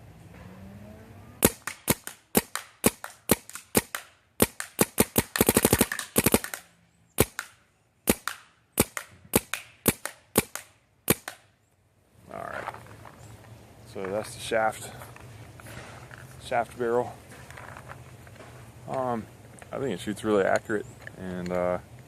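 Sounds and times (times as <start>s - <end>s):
paintball marker shots: 1.4s - 11.5s.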